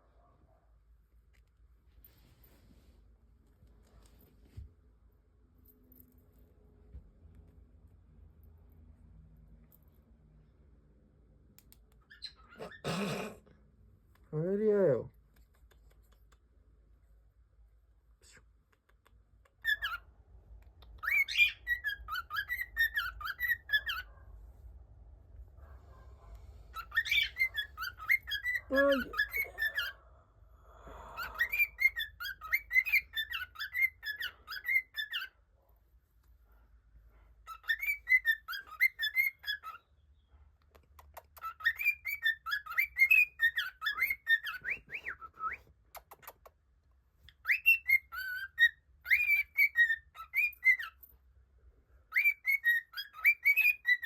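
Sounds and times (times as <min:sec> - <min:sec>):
bird whistling and chirping: 0:19.6 - 0:20.0, 0:20.8 - 0:24.1, 0:26.8 - 0:29.9, 0:31.2 - 0:35.3, 0:37.5 - 0:39.9, 0:41.4 - 0:45.7, 0:47.4 - 0:51.0, 0:52.1 - 0:54.0.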